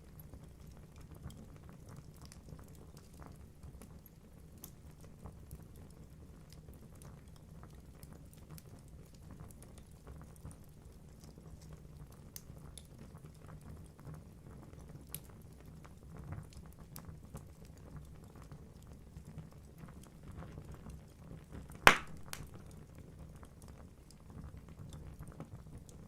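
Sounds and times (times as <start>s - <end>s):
logs crackling and popping: 21.9s - 22.8s.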